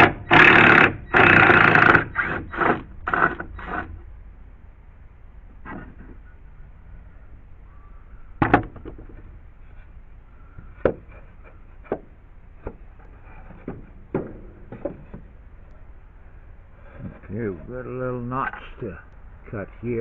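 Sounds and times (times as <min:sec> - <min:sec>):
wooden knocks from lumber: 0:08.4 - 0:09.3, 0:10.7 - 0:12.8, 0:13.4 - 0:15.3.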